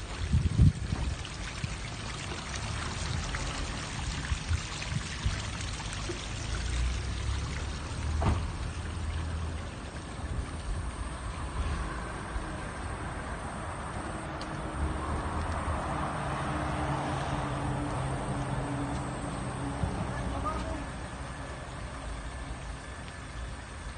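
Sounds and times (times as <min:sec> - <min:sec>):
waterfall splashing: 0:01.1 - 0:10.0.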